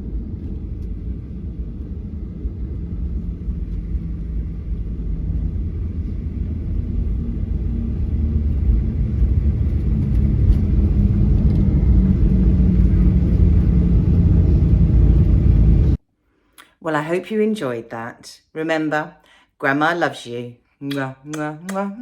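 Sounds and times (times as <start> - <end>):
airliner engine rumble: 0.0 - 16.0.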